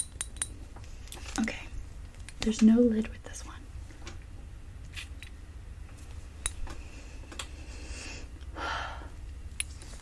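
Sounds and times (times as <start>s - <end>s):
breathy rush of air: 6.8s - 9.2s.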